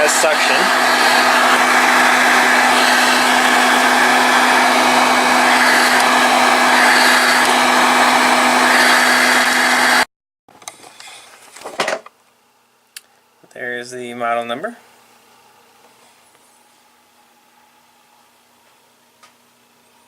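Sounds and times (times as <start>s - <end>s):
vacuum cleaner running: 0.0s - 10.1s.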